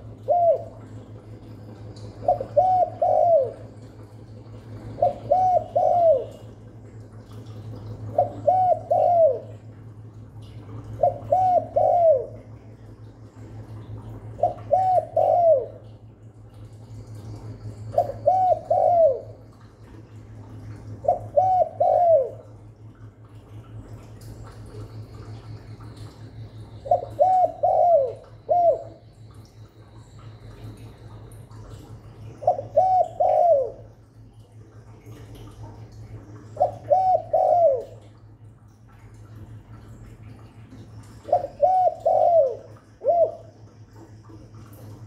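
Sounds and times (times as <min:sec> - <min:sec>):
dove cooing: 0:00.0 - 0:01.4, 0:02.1 - 0:06.6, 0:07.8 - 0:09.8, 0:10.7 - 0:12.6, 0:14.0 - 0:16.0, 0:17.4 - 0:19.5, 0:20.8 - 0:22.6, 0:26.0 - 0:29.3, 0:31.8 - 0:34.0, 0:35.4 - 0:38.2, 0:41.1 - 0:43.6
steady low hum: 0:00.0 - 0:45.0.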